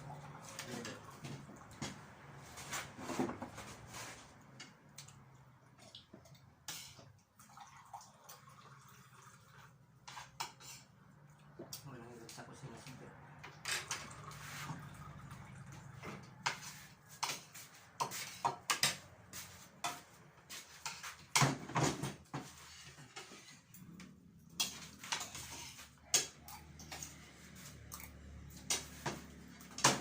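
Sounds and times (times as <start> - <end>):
cutlery clinking on plates: 16.4 - 23.6.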